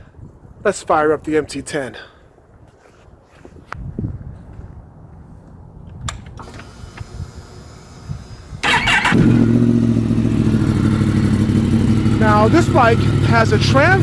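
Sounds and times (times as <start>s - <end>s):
motorcycle engine cranking: 6.2s - 14.0s
motorcycle engine idling: 7.2s - 14.0s.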